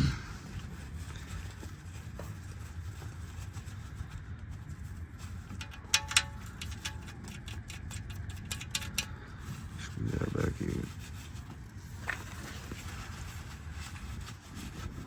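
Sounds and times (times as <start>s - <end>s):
low steady rumble: 0.0s - 15.0s
faint metal ticks: 5.5s - 9.2s.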